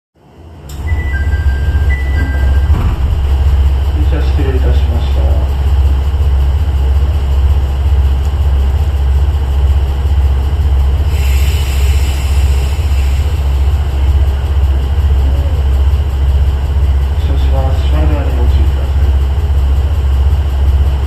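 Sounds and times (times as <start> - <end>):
diesel railcar engine idling: 0.2 - 21.0
air hiss: 11.0 - 14.0.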